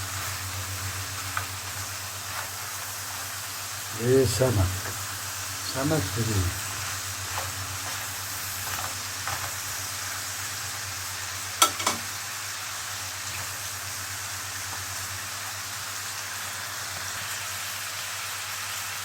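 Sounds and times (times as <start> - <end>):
seafood sizzling in a frying pan: 0.0 - 19.0
utensil knocking on pan: 11.6 - 12.1.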